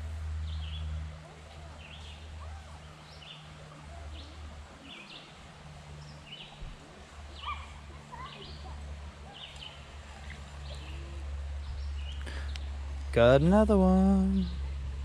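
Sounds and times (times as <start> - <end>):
songbird chirping: 0.0 - 15.0
steady low rumble: 8.7 - 15.0.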